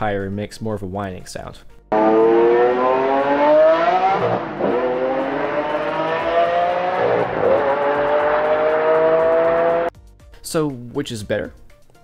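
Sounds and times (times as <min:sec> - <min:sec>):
car engine accelerating hard: 0:01.9 - 0:09.9.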